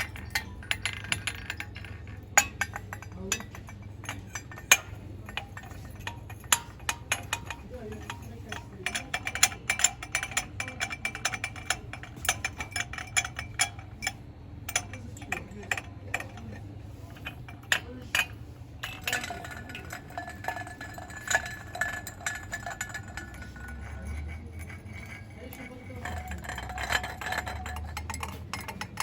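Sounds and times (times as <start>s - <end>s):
scratching and rubbing: 15.2s - 29.0s.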